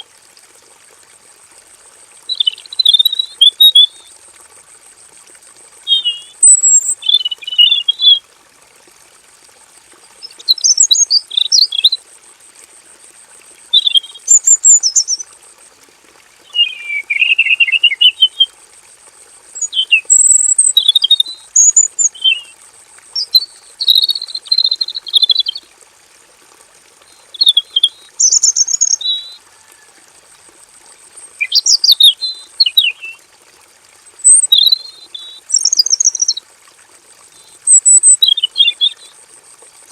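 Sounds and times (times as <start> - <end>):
bird singing warbling phrases: 2.3 - 4.1, 5.9 - 8.2, 10.2 - 12.0, 13.8 - 15.2, 16.5 - 18.5, 19.6 - 22.5, 23.2 - 25.6, 27.1 - 29.4, 31.4 - 33.2, 34.2 - 36.4, 37.4 - 39.1.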